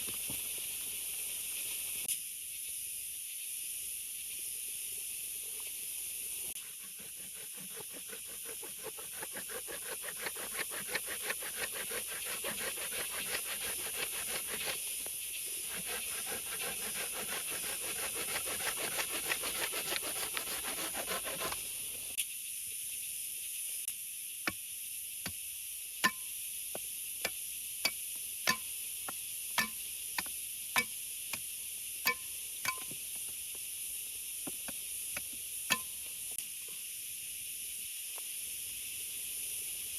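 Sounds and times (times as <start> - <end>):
fast rasping strokes: 6.5 - 21.9
rain hiss: 30.5 - 39.9.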